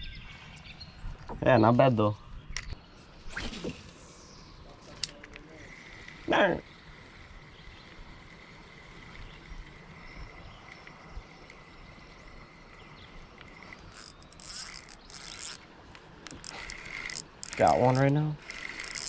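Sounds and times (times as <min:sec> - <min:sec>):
short swish: 0:03.2 - 0:04.4
fishing reel drag rattling: 0:04.9 - 0:19.0.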